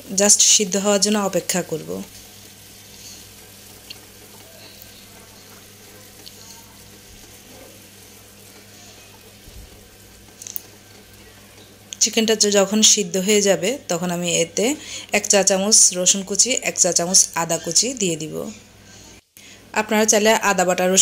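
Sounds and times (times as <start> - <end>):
wooden spatula stirring: 0.0 - 12.7
chicken sizzling in oil: 0.0 - 19.2.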